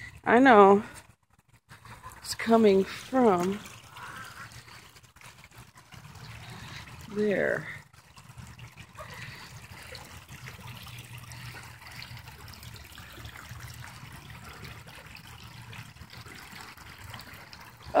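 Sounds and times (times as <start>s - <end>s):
water running and trickling: 0.0s - 18.0s.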